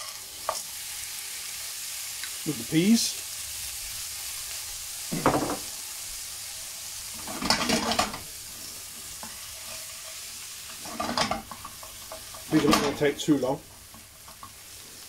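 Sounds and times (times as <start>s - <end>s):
food sizzling in oil in a pan: 0.0s - 15.0s
spatula scraping a pan: 7.0s - 13.0s.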